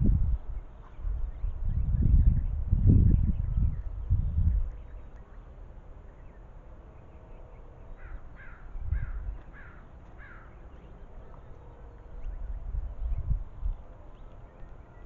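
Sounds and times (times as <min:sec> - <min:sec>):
crow harsh calls: 0:07.9 - 0:10.6.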